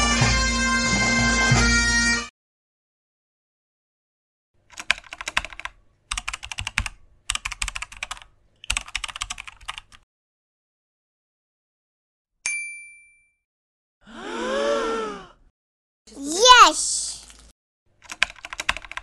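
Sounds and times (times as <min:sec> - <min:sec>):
typewriter bell ding: 0:12.5 - 0:13.4.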